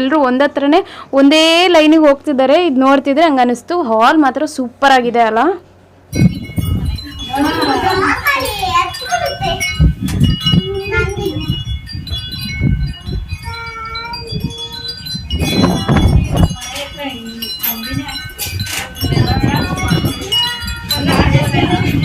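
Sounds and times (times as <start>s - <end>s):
people talking: 0.0s - 5.6s, 6.6s - 11.7s, 12.8s - 22.0s
chime-like ringing tones: 6.1s - 22.0s.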